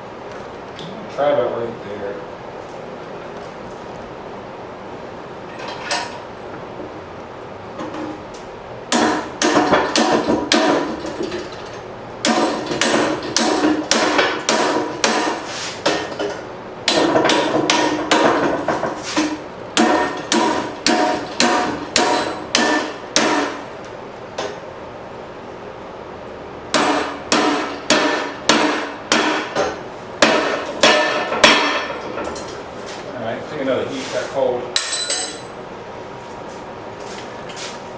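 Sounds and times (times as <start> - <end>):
hammer striking steel on anvil: 8.9 - 11.0, 12.2 - 16.1, 16.8 - 23.6, 26.7 - 32.4, 34.7 - 35.6.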